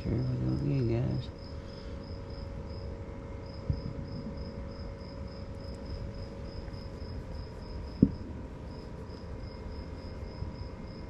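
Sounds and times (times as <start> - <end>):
crickets chirping: 0.0 - 11.0
dull thumps: 7.8 - 8.4.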